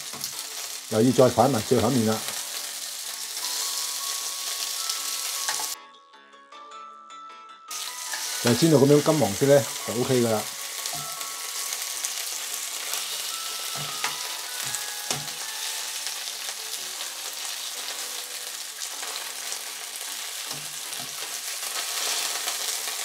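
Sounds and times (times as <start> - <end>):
fish sizzling in a frying pan: 0.0 - 5.8, 7.7 - 23.0
tongs knocking on pan: 13.8 - 15.4, 20.5 - 21.3.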